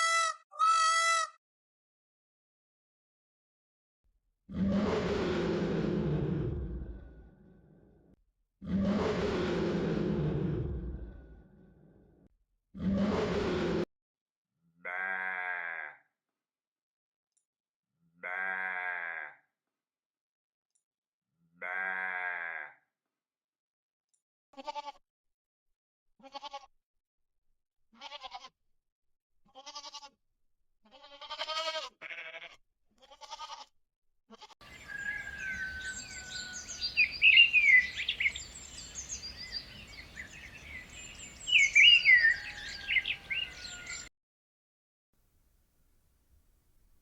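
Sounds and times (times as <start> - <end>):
goat bleating: 0.0 - 1.4, 14.8 - 16.0, 18.2 - 19.4, 21.6 - 22.7, 24.6 - 25.0, 26.2 - 26.7, 27.9 - 28.5, 29.5 - 30.2, 30.8 - 33.7, 34.3 - 34.6
rapid high bird chirps: 34.7 - 44.1.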